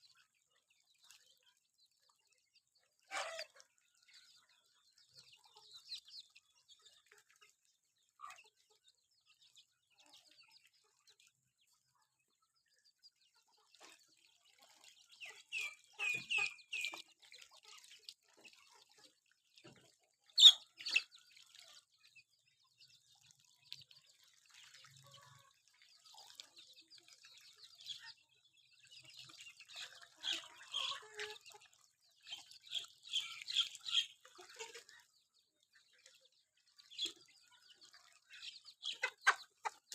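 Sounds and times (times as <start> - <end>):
chickens clucking: 3.1 - 7.5, 8.2 - 9.2, 11.9 - 21.9, 28.9 - 36.3, 36.9 - 39.9.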